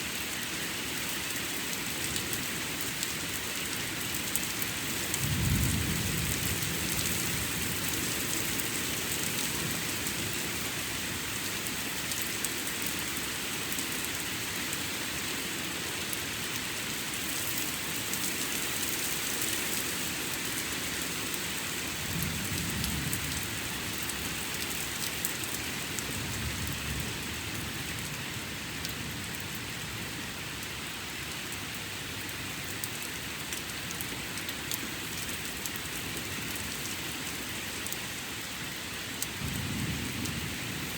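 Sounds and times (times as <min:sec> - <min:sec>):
steady rain: 0:00.0 - 0:40.9
thunder rumbles: 0:05.2 - 0:07.8, 0:39.4 - 0:40.9.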